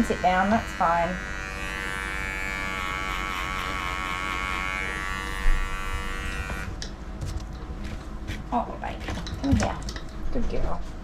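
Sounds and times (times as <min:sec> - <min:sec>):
electric clippers humming: 0:00.0 - 0:06.9.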